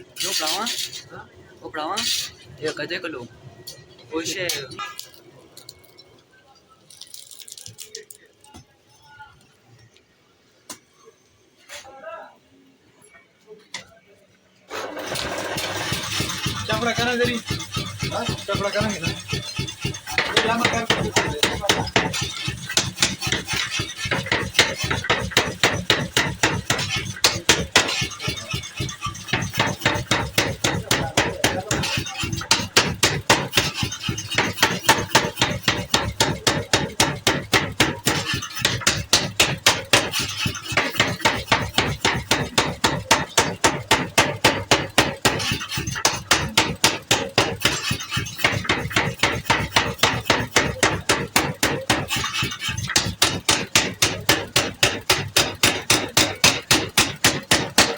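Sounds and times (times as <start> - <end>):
power hammer striking hot steel: 14.8 - 57.9.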